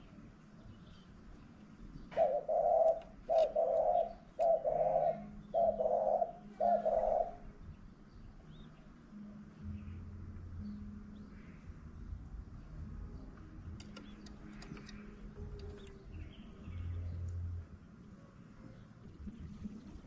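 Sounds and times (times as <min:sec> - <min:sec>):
dove cooing: 0:02.1 - 0:07.5.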